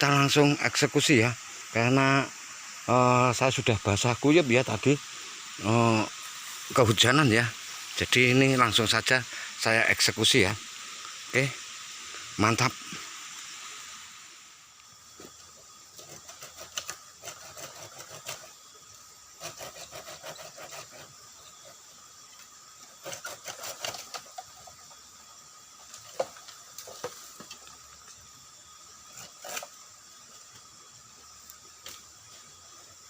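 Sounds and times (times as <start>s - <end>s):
bamboo being cut by hand: 15.3s - 18.7s, 19.3s - 25.1s, 25.8s - 27.8s, 29.0s - 30.7s.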